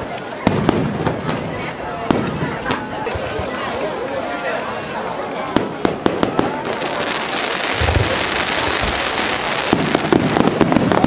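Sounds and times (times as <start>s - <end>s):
fireworks crackling: 0.0s - 11.0s
fireworks booms: 0.4s - 3.3s, 5.5s - 11.0s.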